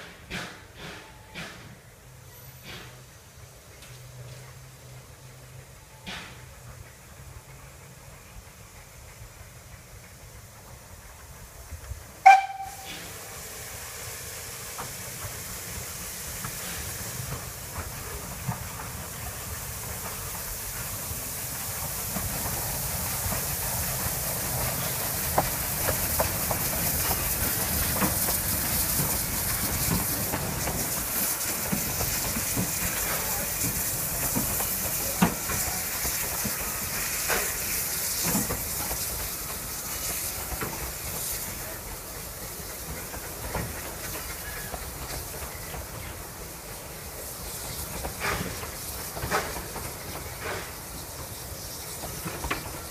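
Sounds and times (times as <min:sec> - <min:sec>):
sharp clanks and knocks: 0:00.0 - 0:01.8, 0:06.0 - 0:06.5, 0:48.0 - 0:50.8
steam locomotive hissing steam: 0:00.0 - 0:52.9.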